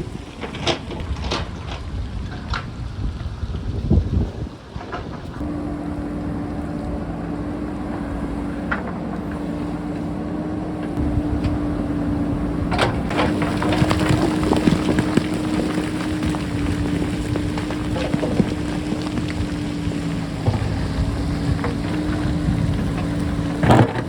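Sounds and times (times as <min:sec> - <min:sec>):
diesel engine running: 0:05.3 - 0:24.0.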